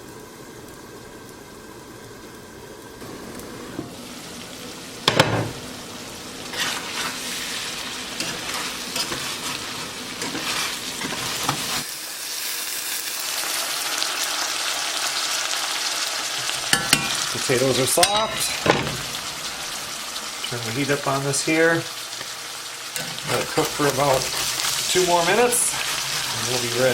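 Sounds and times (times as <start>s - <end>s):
potatoes sizzling in a pan: 0.0s - 26.9s.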